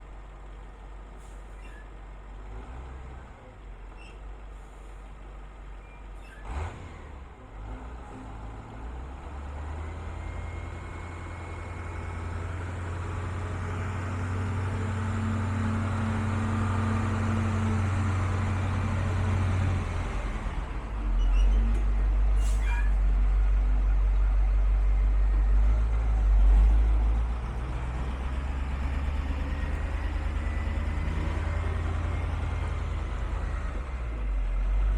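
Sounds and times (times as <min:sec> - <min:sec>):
truck engine running: 0:00.0 - 0:02.5, 0:21.7 - 0:34.9.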